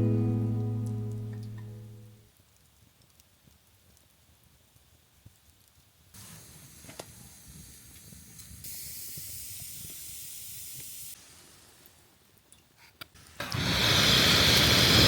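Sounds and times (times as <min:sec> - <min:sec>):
wood fire crackling: 0:00.0 - 0:15.0
fire hissing: 0:06.1 - 0:12.0, 0:13.2 - 0:15.0.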